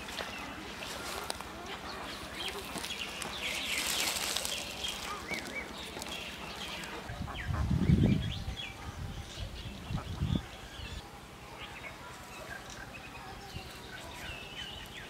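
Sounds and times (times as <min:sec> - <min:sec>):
water and plants stirred: 0:00.0 - 0:07.2
small birds chirping: 0:00.0 - 0:15.0.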